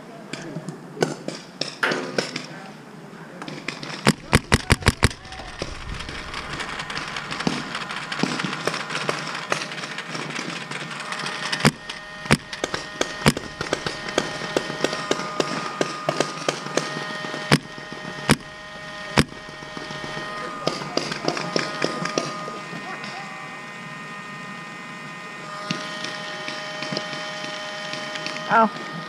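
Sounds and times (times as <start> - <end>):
paintball markers firing: 3.4 - 7.6, 11.5 - 18.5
steady hiss: 4.0 - 15.8.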